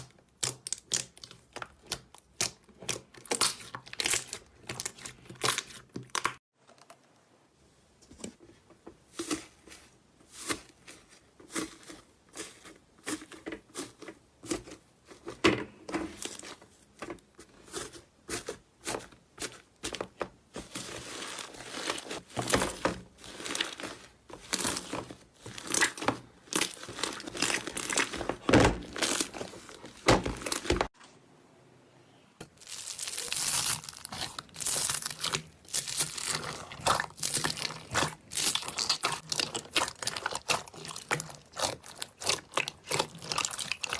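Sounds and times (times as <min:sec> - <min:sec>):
slime squeezed crackling and popping: 0:32.6 - 0:43.9.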